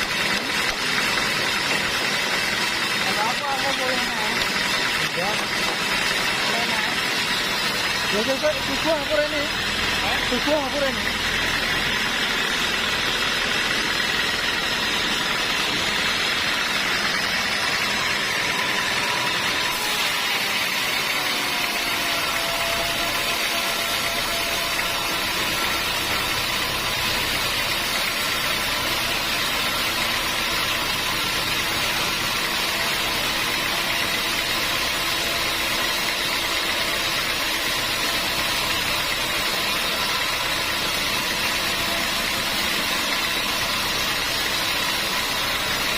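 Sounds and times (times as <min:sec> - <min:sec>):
sawmill machinery whining: 0:00.0 - 0:45.9.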